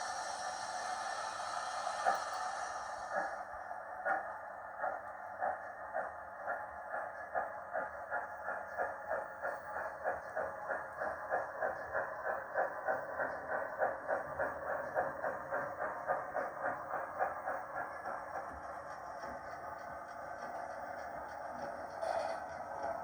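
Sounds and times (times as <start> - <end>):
steam exhaust chuffs from small speaker: 0.0 - 3.4.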